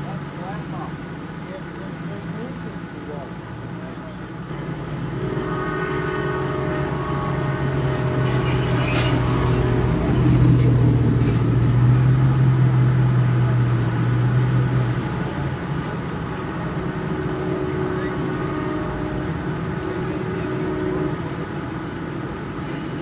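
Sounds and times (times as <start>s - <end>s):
traffic noise: 0.0s - 23.0s
vehicle engine idling: 0.0s - 23.0s.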